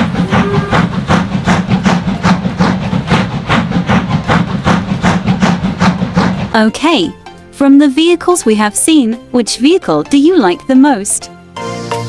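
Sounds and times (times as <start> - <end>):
train chugging: 0.0 - 11.2.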